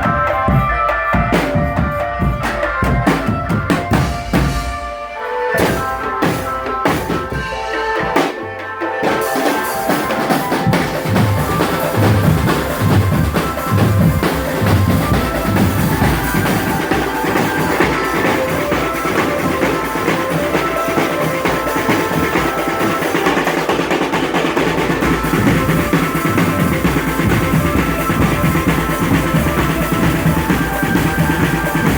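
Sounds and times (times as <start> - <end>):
held melody line: 0.0 - 31.9
snare and bass drums: 0.0 - 31.9.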